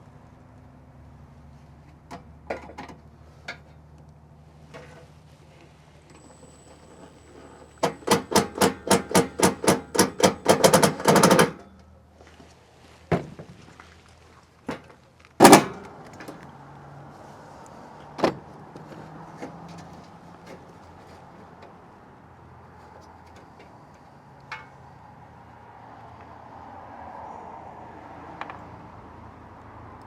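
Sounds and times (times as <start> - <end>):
screw being driven: 6.4 - 11.6
metal knocks: 6.9 - 11.6, 15.4 - 16.3.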